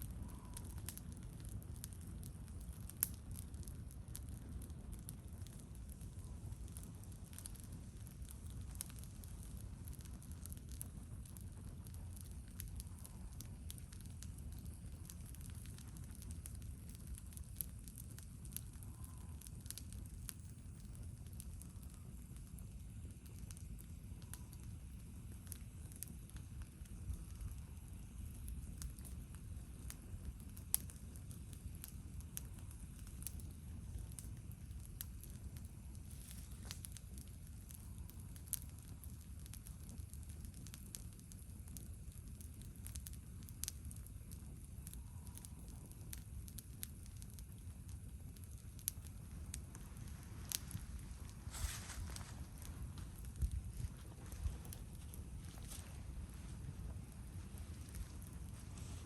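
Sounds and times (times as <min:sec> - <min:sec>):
low steady rumble: 0:00.0 - 0:59.0
wood fire crackling: 0:00.0 - 0:59.0
low rumble: 0:49.1 - 0:59.0.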